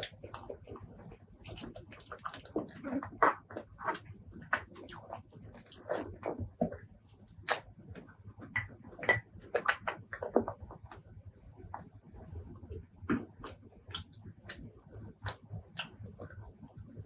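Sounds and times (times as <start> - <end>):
wet chewing: 1.4 - 4.0, 4.8 - 8.1, 15.3 - 17.0
lip smacks: 4.8 - 6.4, 7.3 - 7.6, 15.3 - 16.8.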